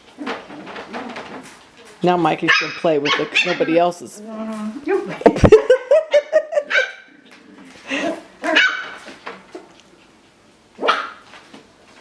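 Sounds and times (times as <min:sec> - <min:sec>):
puppies barking: 0:02.4 - 0:04.0, 0:04.8 - 0:07.2, 0:07.9 - 0:09.7, 0:10.8 - 0:11.3.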